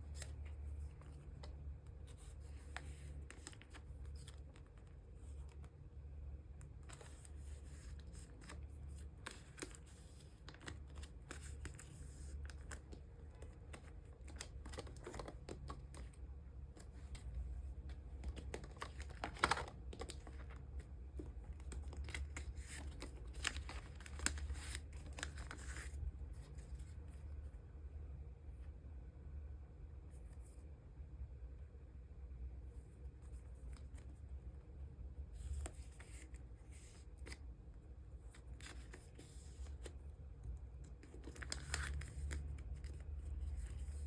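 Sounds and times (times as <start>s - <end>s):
plastic sleeves rustling and sliding: 0.0s - 5.7s, 6.8s - 27.1s, 38.1s - 44.0s
cards tapping and clicking: 9.2s - 25.8s.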